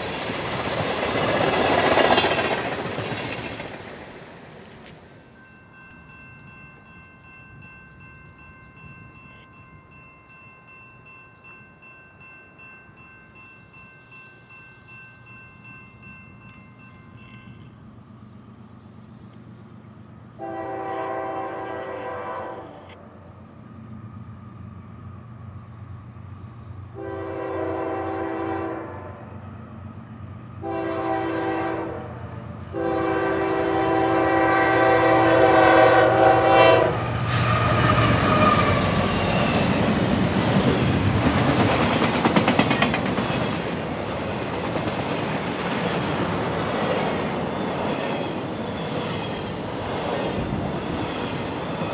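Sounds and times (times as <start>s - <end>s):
train low rumble: 0.0s - 51.9s
locomotive air horn blasts: 20.4s - 22.9s, 27.0s - 29.4s, 30.6s - 37.8s.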